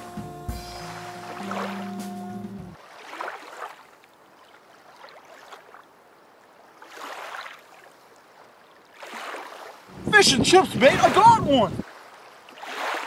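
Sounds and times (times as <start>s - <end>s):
background music: 0.0s - 2.8s
water lapping around boat: 0.0s - 13.0s.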